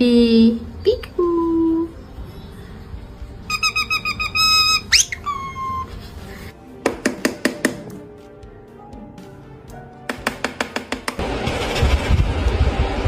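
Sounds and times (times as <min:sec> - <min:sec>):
parrot whistling: 0:03.5 - 0:06.0.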